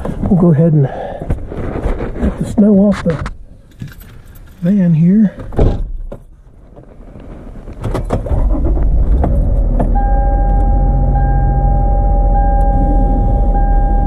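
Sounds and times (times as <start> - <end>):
van engine starting and running: 5.6 - 14.0
vehicle warning chime: 9.9 - 14.0.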